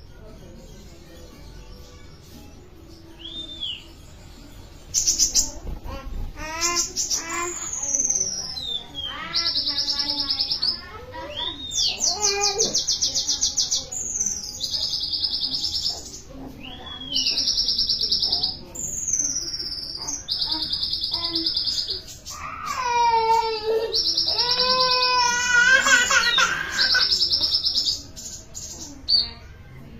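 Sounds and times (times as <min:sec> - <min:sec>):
songbird singing trills and whistles: 0:03.0 - 0:04.1, 0:06.8 - 0:22.4.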